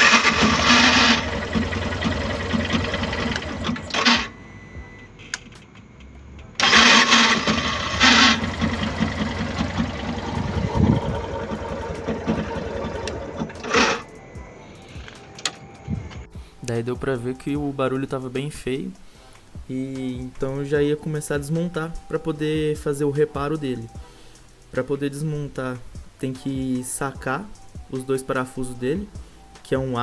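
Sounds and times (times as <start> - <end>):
starter motor grinding and rattling: 0.0 - 4.3, 6.6 - 14.1.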